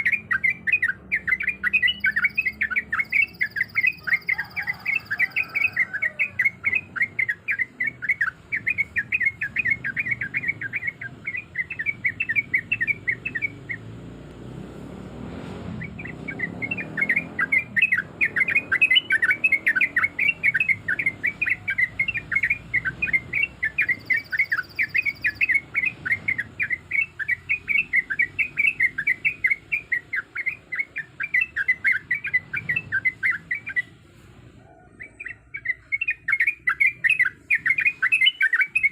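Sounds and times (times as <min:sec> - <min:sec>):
bird chattering song: 0:00.0 - 0:14.1, 0:15.7 - 0:34.0, 0:34.7 - 0:38.9.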